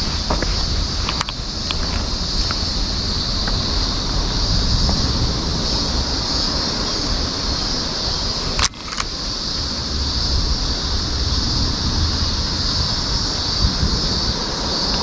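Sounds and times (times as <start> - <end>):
high hiss: 0.0 - 15.0
wind rumbling on microphone: 0.0 - 15.0
sharp click: 8.6 - 9.1.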